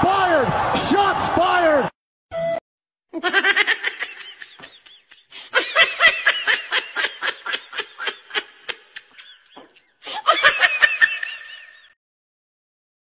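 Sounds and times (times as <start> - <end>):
rhythmic laughter: 3.2 - 12.0.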